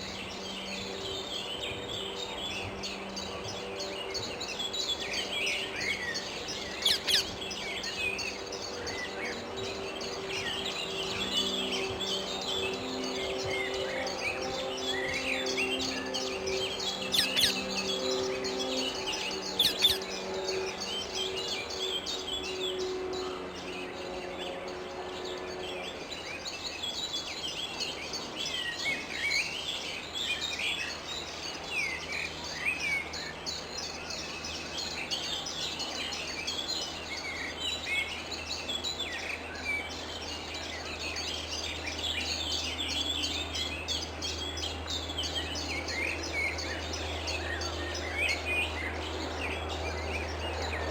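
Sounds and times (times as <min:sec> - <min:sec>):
flock of parakeets calling: 0:05.5 - 0:08.0, 0:14.8 - 0:20.8.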